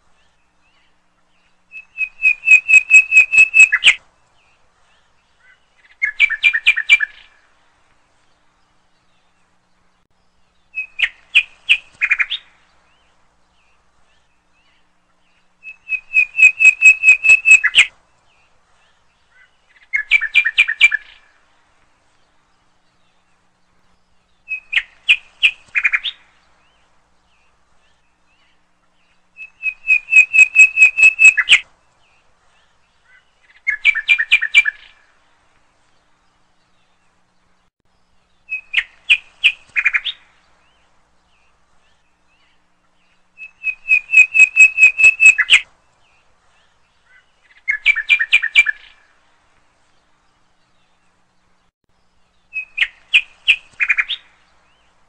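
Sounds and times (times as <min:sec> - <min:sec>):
bird chirping in rapid trills: 0:01.5 - 0:04.0, 0:10.3 - 0:18.5, 0:23.2 - 0:31.7, 0:38.0 - 0:49.0.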